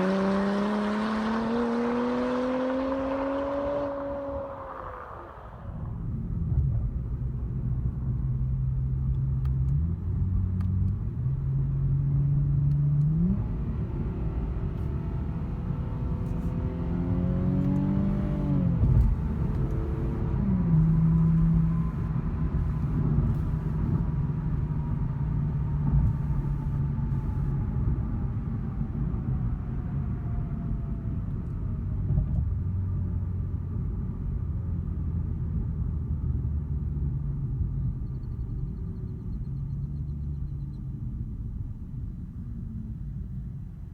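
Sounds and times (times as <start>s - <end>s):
car exhaust drone: 13.4s - 33.0s.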